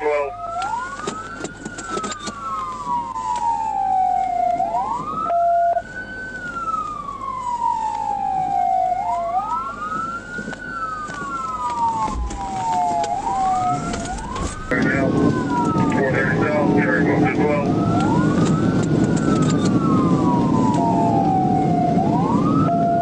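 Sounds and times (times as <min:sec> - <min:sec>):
police siren wailing: 0:00.0 - 0:23.0
short steady siren tone: 0:04.7 - 0:05.8, 0:11.5 - 0:16.1.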